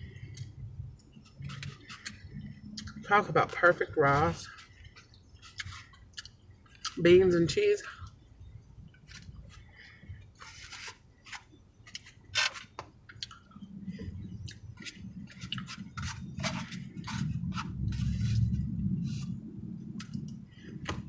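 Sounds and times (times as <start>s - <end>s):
chewing and crunching food: 0.0s - 7.2s, 8.9s - 21.0s
low drone: 13.5s - 21.0s.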